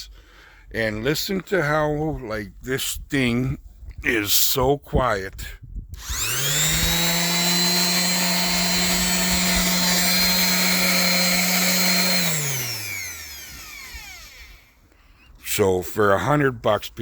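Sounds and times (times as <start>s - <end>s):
electric sander motor whining: 6.0s - 15.0s.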